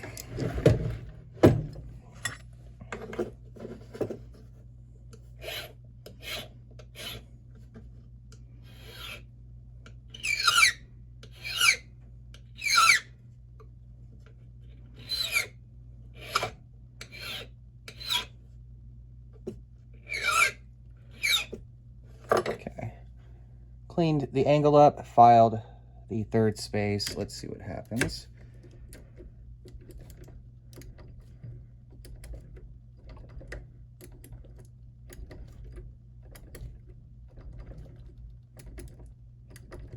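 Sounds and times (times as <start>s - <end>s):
file rasping on brass key: 5.4s - 7.2s, 8.7s - 9.3s, 15.0s - 15.5s, 16.2s - 18.3s, 20.0s - 21.6s.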